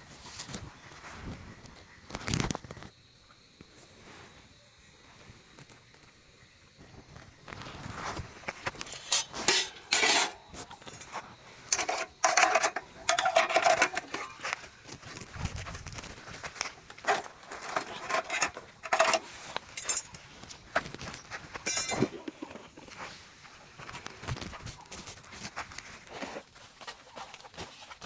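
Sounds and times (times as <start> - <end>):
utensils clinking and scraping pots: 8.6 - 14.8, 17.0 - 20.2, 21.6 - 23.0.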